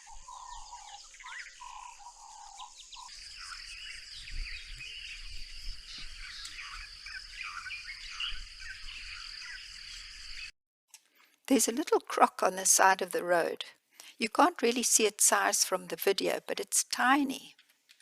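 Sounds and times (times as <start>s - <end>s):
birds calling and chirping: 0.0s - 10.5s
high insect trill: 0.4s - 10.5s.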